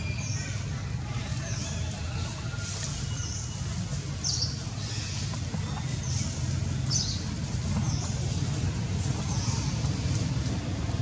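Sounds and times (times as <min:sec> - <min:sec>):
steady low rumble: 0:03.3 - 0:11.0.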